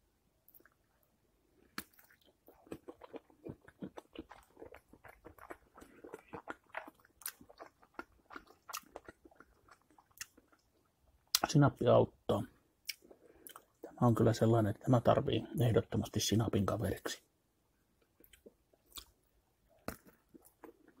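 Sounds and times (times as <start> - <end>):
person chewing with wet clicks: 0.5 - 0.9, 1.7 - 11.5, 12.8 - 14.0, 18.0 - 19.2, 19.8 - 21.0.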